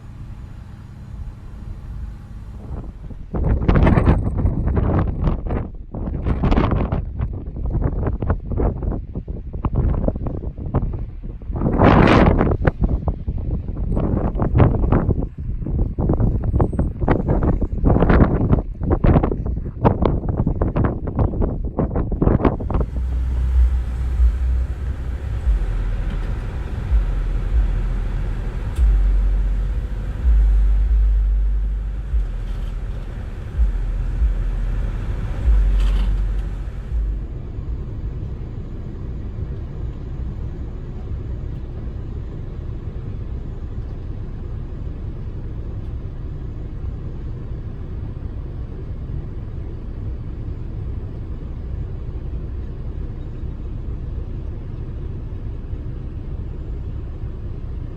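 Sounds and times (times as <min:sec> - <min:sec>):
steady quiet drone: 0:00.0 - 0:03.8, 0:22.4 - 0:57.9
wind buffeting microphone: 0:00.0 - 0:46.1
truck rumbling: 0:00.0 - 0:57.9.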